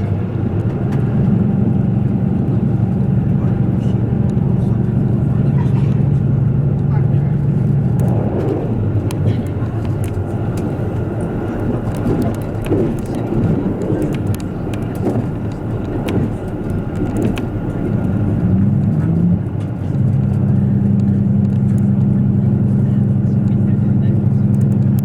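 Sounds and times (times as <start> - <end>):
train engine and wheels rumbling: 0.0 - 25.0
clicks and rattles: 7.9 - 21.6.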